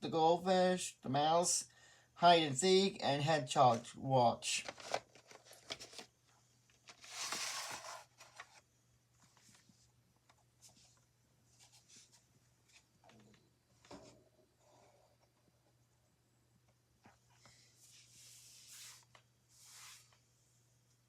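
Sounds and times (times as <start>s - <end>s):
rustling scrape: 6.9s - 8.6s, 17.8s - 20.2s.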